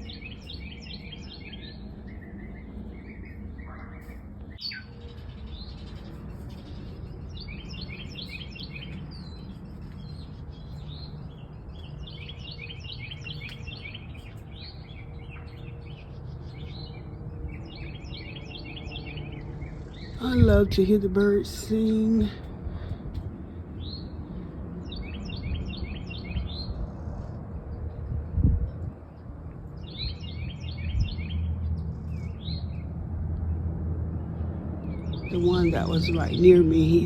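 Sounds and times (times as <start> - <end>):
songbird chirping: 0.0 - 22.5, 34.8 - 37.0.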